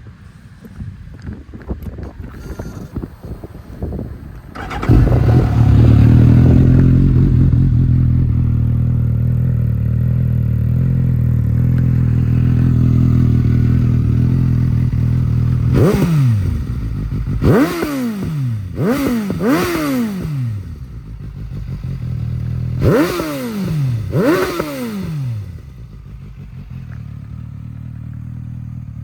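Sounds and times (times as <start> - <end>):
motorcycle engine starting: 1.7 - 29.0
motorcycle engine idling: 1.9 - 29.0
throttle blips revving engine: 4.5 - 8.3, 13.9 - 26.9.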